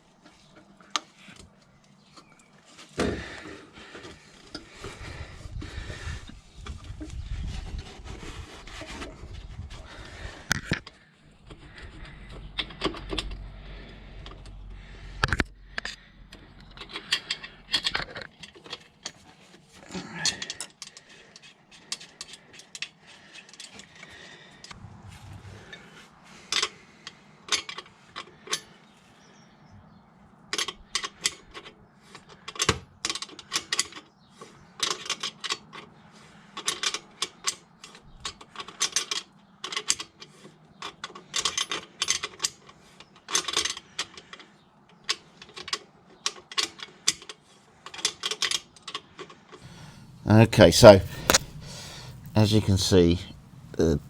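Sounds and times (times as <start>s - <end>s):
tools and metal parts clinking: 10.5s - 24.1s, 27.5s - 28.8s, 34.8s - 35.9s, 36.6s - 44.4s, 45.0s - 52.7s
ratcheting clatter: 11.4s - 19.2s.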